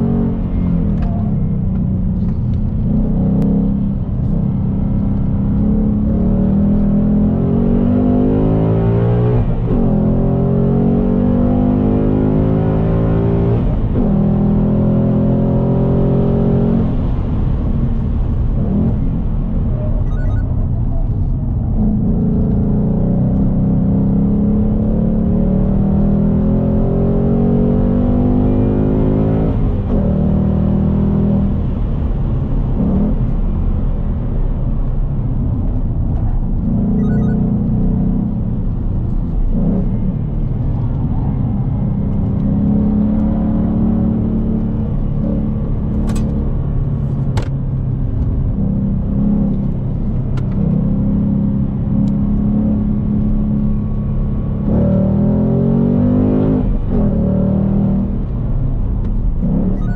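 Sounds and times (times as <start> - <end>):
car engine accelerating hard: 0.0 - 20.4, 21.0 - 59.9.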